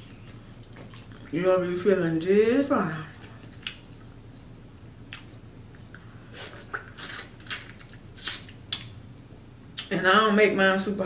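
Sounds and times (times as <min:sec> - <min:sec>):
wet mouth clicks and smacks eating: 0:03.2 - 0:04.5, 0:07.2 - 0:09.0.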